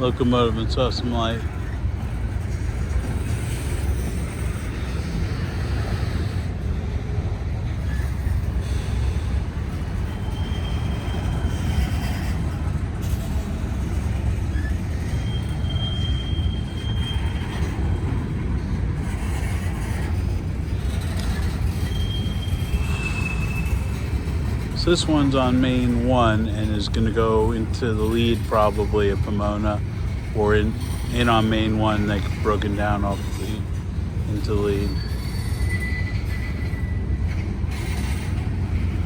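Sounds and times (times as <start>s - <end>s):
train wheels rumbling on rail: 0.0s - 39.0s
high-pitched wheel squeals: 7.8s - 13.6s, 14.3s - 18.4s, 19.1s - 39.0s.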